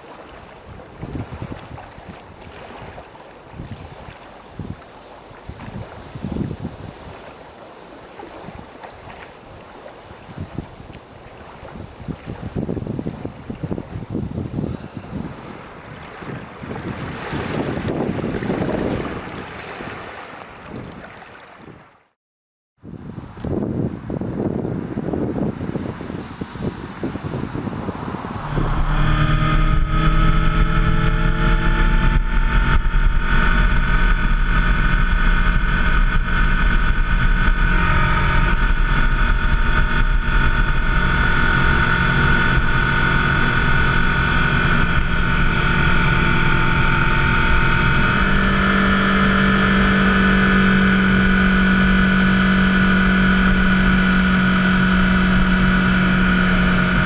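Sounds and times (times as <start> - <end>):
wind and road noise: 0.0 - 22.1, 22.8 - 57.0
motorcycle engine running: 27.3 - 57.0.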